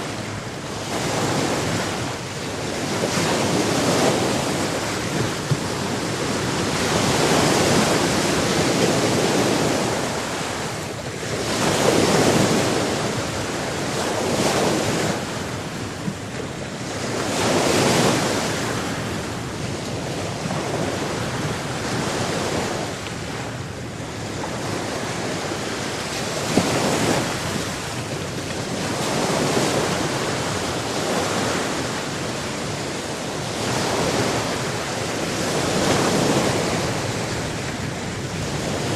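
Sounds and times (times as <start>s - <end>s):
sea waves washing in: 0.0s - 38.9s.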